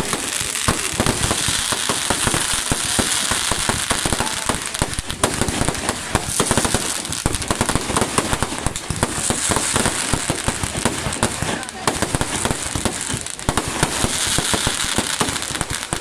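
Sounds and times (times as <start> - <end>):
fireworks bangs and crackling: 0.0 - 16.0.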